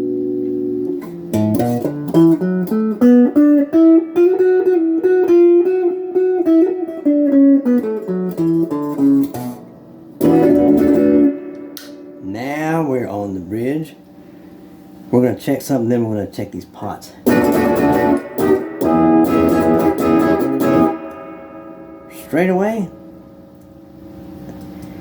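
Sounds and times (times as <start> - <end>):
overdriven electric guitar lead: 0.0 - 12.6, 17.2 - 24.1
electric guitar chord choked: 0.0 - 14.7, 17.2 - 24.4.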